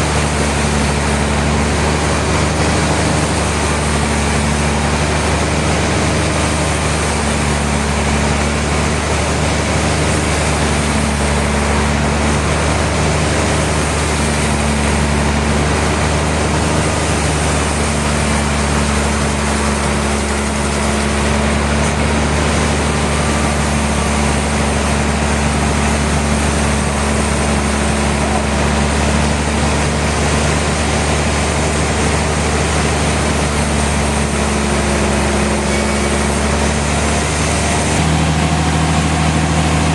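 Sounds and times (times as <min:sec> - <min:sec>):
dense mechanical noise: 0:00.0 - 0:39.9
low engine-like hum: 0:00.0 - 0:39.9.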